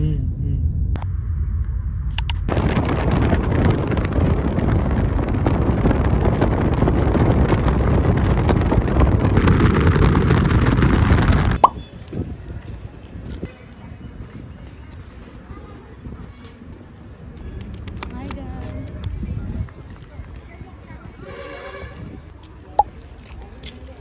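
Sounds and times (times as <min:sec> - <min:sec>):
wind buffeting microphone: 0:02.5 - 0:16.4, 0:17.7 - 0:22.8.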